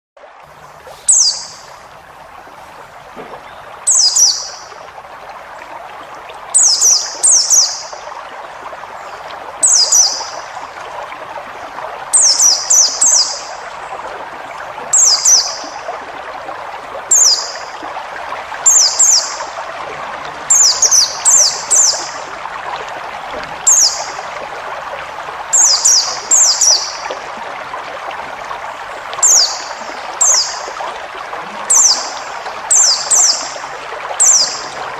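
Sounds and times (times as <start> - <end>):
bird singing high chirps: 1.1 - 1.7, 3.5 - 4.6, 6.6 - 7.9.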